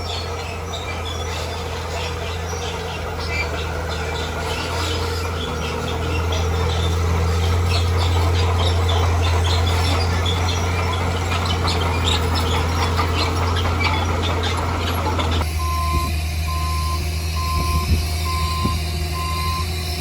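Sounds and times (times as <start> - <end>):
short high squeaks: 0.0 - 15.4
diesel engine running: 0.0 - 20.0.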